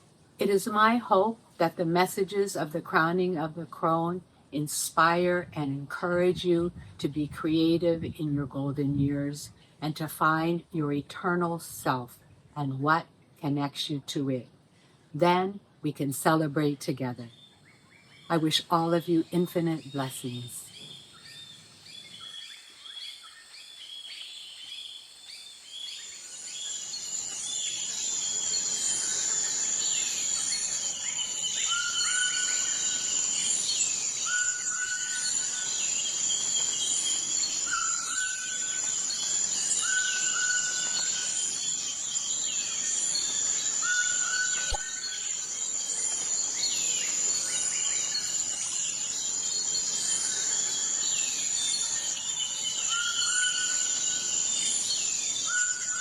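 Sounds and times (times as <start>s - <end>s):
insect drone: 20.2s - 56.0s
birds calling and singing: 25.8s - 56.0s
bird whistle: 37.6s - 39.0s, 39.6s - 41.4s, 43.8s - 45.3s
sharp click: 44.6s - 44.9s.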